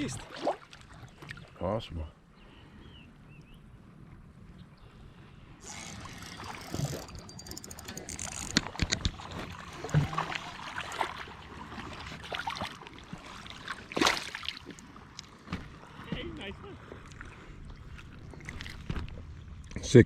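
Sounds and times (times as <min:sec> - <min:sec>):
water sloshing and splashing: 0:00.0 - 0:01.7, 0:05.6 - 0:19.8
sharp knocks and clicks: 0:05.8 - 0:10.3.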